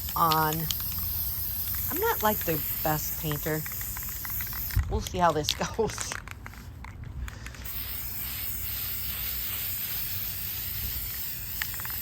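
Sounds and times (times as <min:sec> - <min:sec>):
aerosol can spraying: 0:00.0 - 0:05.6, 0:07.6 - 0:12.0.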